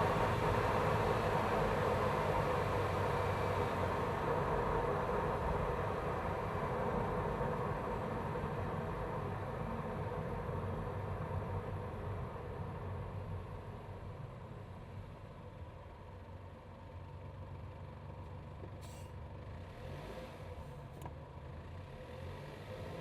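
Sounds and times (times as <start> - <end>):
car engine running close up: 0.0 - 23.0
short hiss: 18.8 - 19.1.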